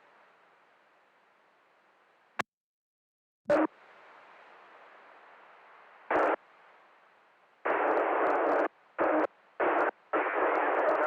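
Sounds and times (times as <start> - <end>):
radio squelch hiss bursts: 6.1 - 6.4, 7.6 - 11.0.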